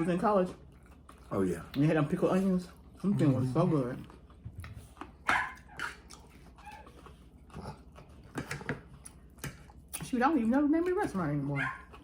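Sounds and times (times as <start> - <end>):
dog yipping and barking: 5.3 - 5.9, 11.6 - 11.9
people talking: 10.0 - 11.7.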